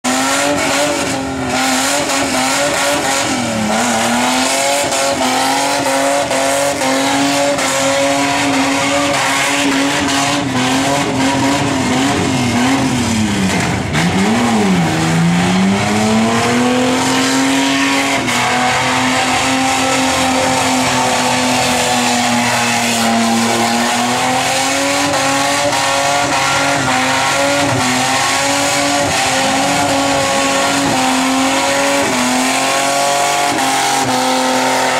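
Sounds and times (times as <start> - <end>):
car engine at high revs: 0.0 - 34.9.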